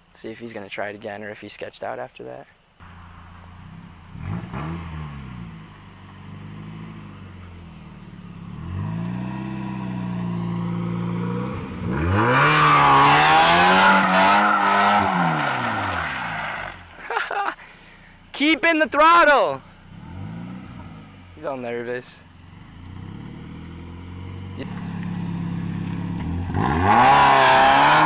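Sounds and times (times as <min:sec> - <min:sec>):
car engine revving: 0:02.8 - 0:16.9, 0:19.7 - 0:28.0.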